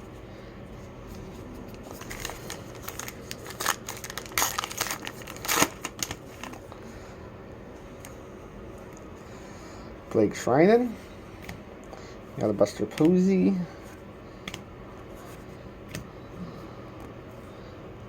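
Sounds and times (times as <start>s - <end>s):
wrapper crinkling and tearing: 1.7s - 6.7s.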